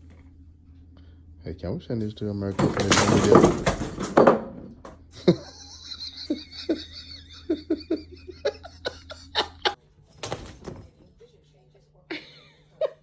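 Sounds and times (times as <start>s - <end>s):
person laughing: 5.2s - 9.8s, 12.1s - 13.0s.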